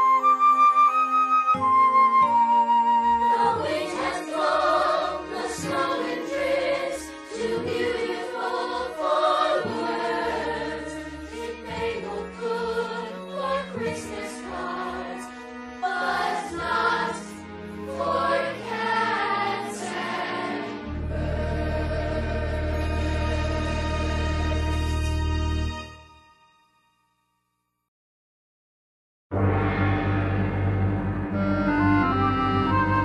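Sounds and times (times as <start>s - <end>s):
choir singing held notes: 3.2s - 25.2s.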